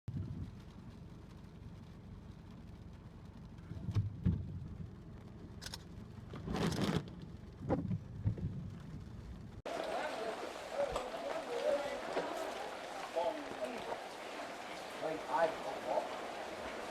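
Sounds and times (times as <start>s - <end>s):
wind rumbling on microphone: 0.1s - 9.6s.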